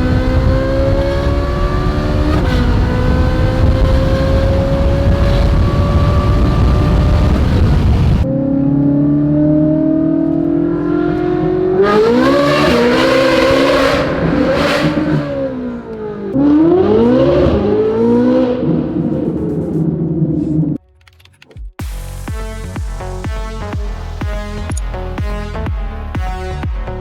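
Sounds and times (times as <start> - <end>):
car engine accelerating: 0.0 - 20.8.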